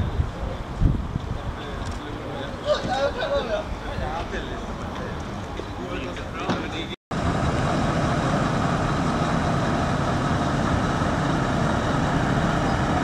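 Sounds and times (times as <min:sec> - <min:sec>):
heavy truck engine running: 0:06.6 - 0:13.0.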